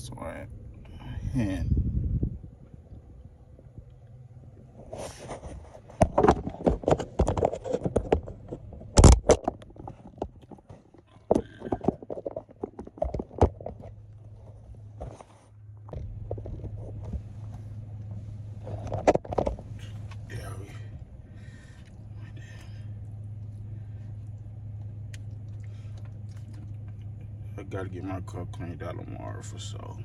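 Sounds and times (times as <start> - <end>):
low steady hum: 0.0 - 30.0
sharp clicks and knocks: 5.8 - 14.0, 18.6 - 20.2
chewing and lip smacking: 23.0 - 27.4.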